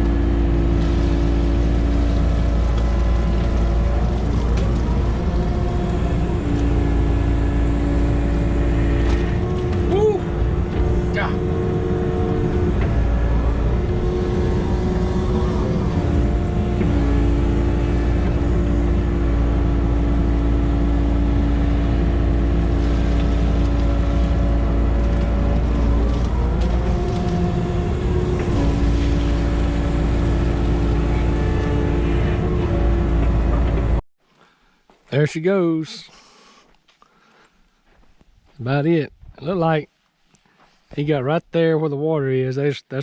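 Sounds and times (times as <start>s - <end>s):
earth-moving machine engine: 0.0s - 34.0s.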